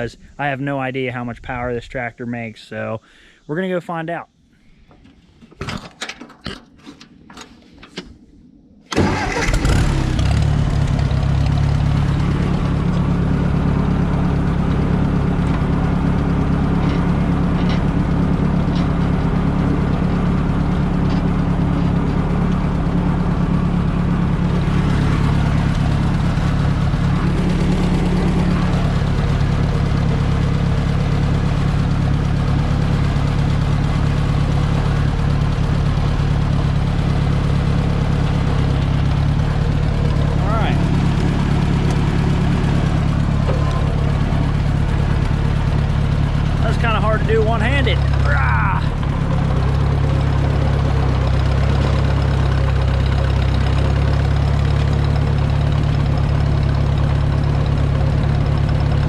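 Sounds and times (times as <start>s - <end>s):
tractor engine running: 8.9s - 59.0s.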